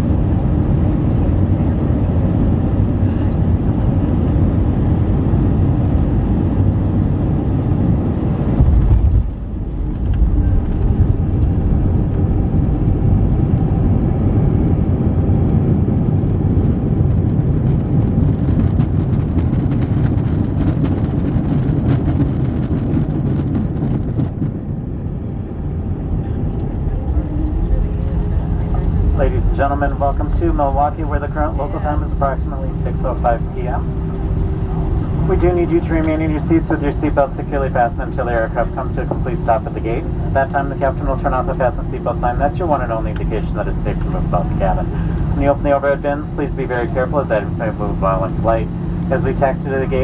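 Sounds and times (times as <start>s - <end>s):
airplane cabin airflow and engines: 0.0s - 50.0s
low thump: 8.6s - 11.2s.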